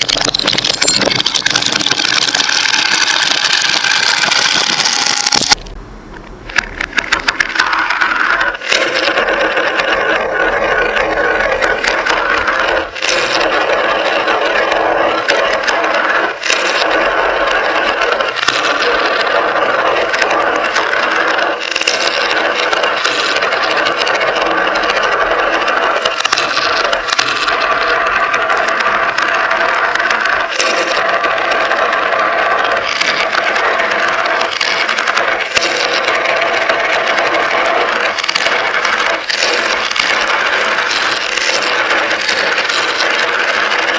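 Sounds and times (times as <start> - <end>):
marbles rolling and clicking: 0.0 - 5.8, 6.5 - 43.9.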